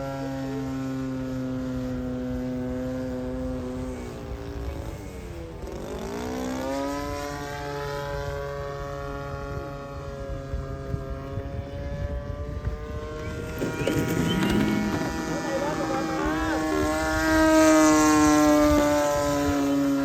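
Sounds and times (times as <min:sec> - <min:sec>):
model airplane engine running: 0:00.0 - 0:20.0.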